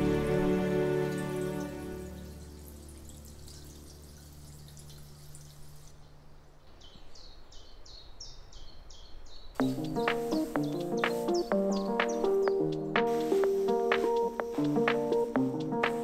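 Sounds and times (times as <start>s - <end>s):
background music: 0.0s - 4.3s, 9.6s - 16.0s.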